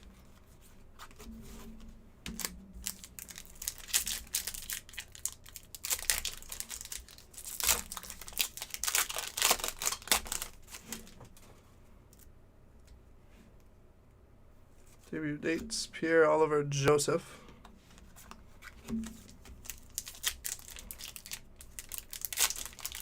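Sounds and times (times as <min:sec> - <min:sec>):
plastic wrappers crinkling and tearing: 0:02.3 - 0:11.3, 0:18.6 - 0:23.0.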